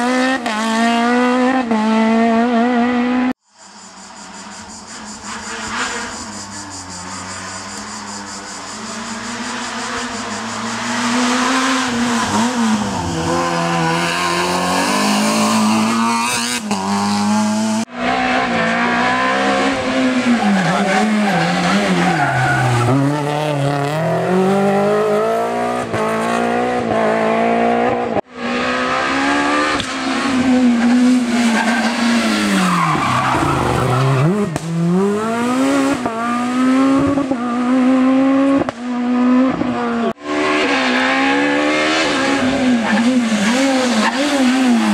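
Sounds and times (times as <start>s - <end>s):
rally car engines revving: 0.0s - 44.9s
tyre squeal: 3.7s - 13.8s, 20.2s - 23.8s, 30.4s - 35.1s, 42.8s - 44.9s.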